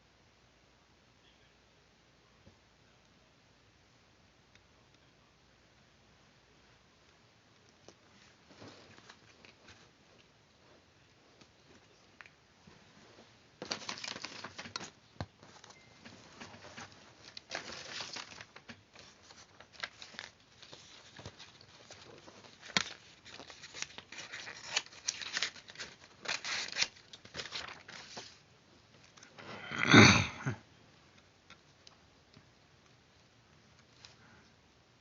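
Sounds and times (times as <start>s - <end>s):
paper rustling and crinkling: 8.0s - 10.8s, 11.4s - 29.3s.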